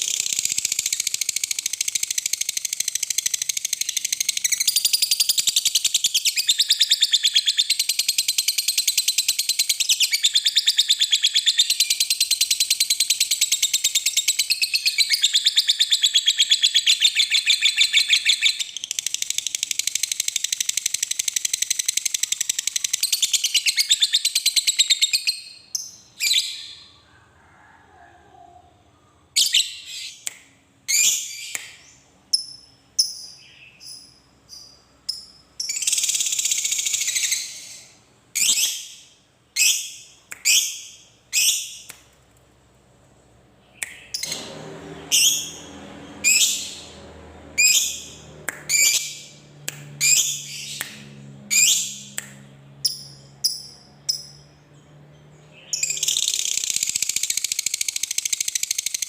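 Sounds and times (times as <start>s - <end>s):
lovebird chirping and chattering: 0.0s - 26.9s, 30.9s - 41.9s, 46.2s - 47.0s, 47.6s - 49.4s, 50.0s - 52.2s, 55.6s - 59.0s.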